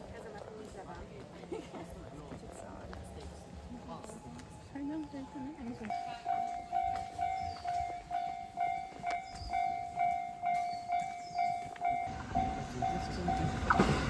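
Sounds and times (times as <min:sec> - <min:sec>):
train rumble: 0:00.0 - 0:14.0
level crossing warning bell: 0:03.0 - 0:14.0.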